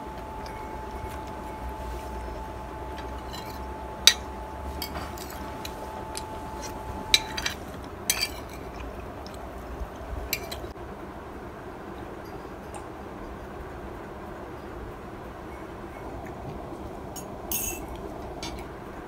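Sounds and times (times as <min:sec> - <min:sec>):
cutlery clinking on ceramic plate: 0:03.0 - 0:08.8, 0:10.3 - 0:10.7, 0:17.2 - 0:18.7.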